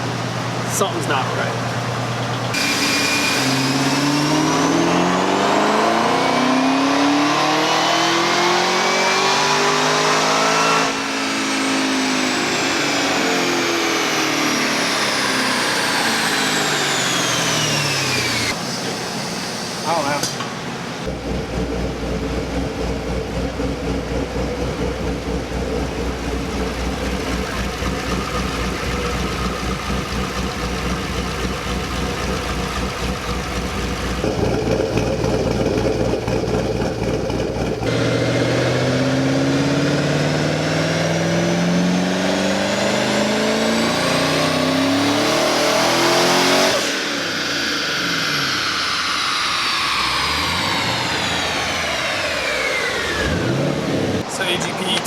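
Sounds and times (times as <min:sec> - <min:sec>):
car engine revving on dyno: 0:02.5 - 0:20.2, 0:21.0 - 0:54.5
dyno rollers winding down: 0:21.1 - 0:39.1, 0:46.7 - 0:55.0.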